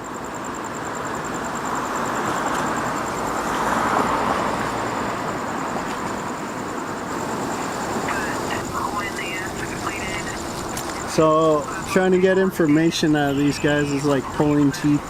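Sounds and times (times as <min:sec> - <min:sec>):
car driving past: 0:00.9 - 0:08.9.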